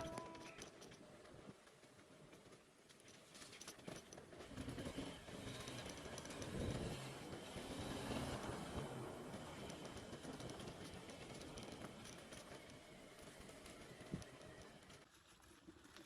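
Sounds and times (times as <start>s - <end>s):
motorcycle rough rumble: 3.2s - 15.1s.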